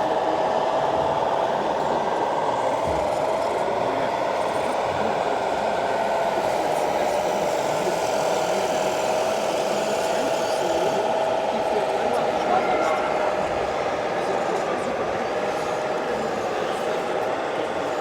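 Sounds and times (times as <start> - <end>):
constant background noise: 0.0 - 18.0.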